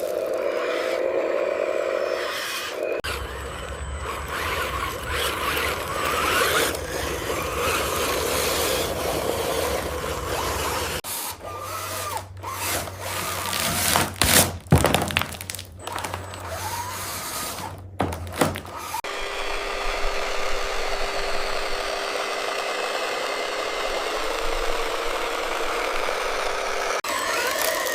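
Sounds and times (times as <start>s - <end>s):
small electric motors whining: 0.0s - 14.2s, 15.4s - 27.9s
gear noise: 0.0s - 27.9s
sharp knocks and clatter: 13.9s - 16.5s.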